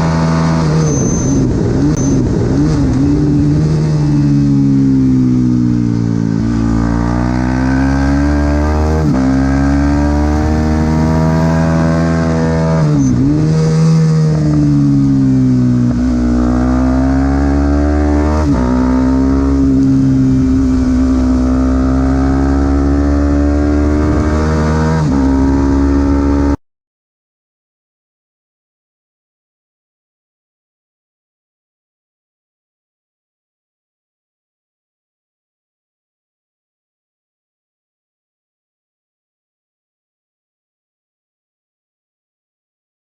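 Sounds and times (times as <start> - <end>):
motorcycle engine accelerating hard: 0.0 - 26.6.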